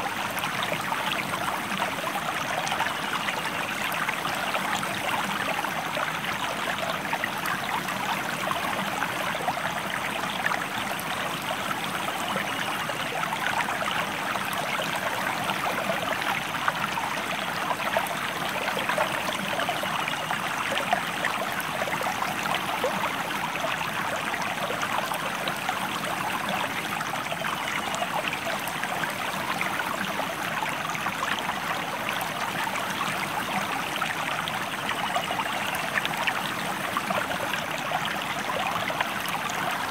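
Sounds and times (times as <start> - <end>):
river stream flowing: 0.0 - 39.9.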